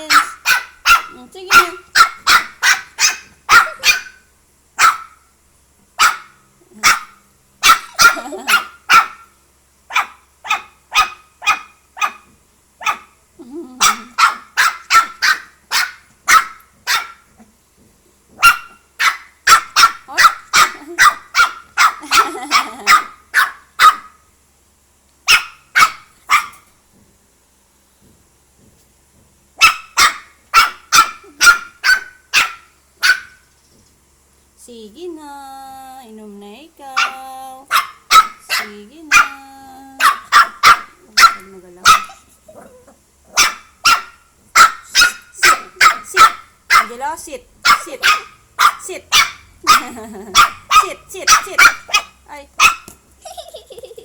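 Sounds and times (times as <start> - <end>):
dog barking: 0.0 - 4.2, 4.8 - 5.2, 6.0 - 9.3, 9.9 - 13.2, 13.8 - 17.3, 18.4 - 24.2, 25.3 - 26.7, 29.6 - 33.4, 37.0 - 39.4, 40.0 - 42.3, 43.3 - 53.0.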